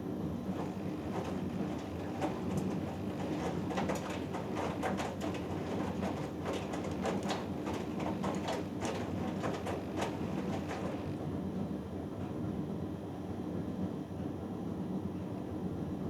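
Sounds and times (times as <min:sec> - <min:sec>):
washing machine hum: 0:00.0 - 0:16.0
wet laundry tumbling in drum: 0:00.4 - 0:11.3.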